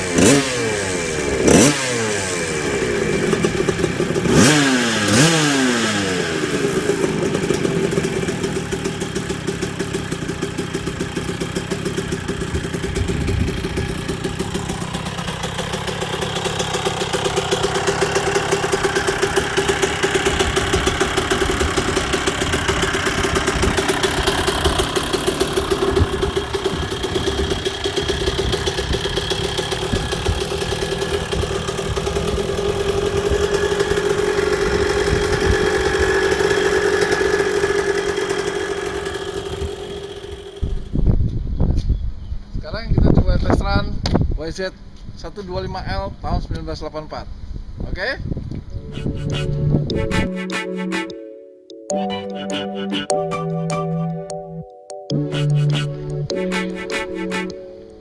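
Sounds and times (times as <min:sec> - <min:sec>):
two-stroke motorbike engine revving: 0:00.0 - 0:41.1, 0:48.8 - 0:50.3.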